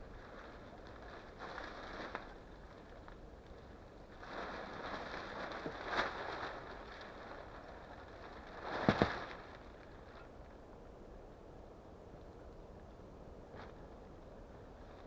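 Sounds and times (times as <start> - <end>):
rustling and crunching: 0.0 - 10.3.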